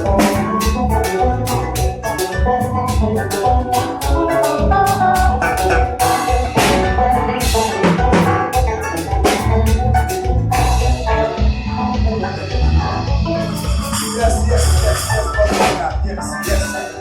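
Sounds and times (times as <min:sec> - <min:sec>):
drum kit beat: 0:00.0 - 0:17.0
heavy bass: 0:00.0 - 0:17.0
live band playing: 0:00.0 - 0:17.0.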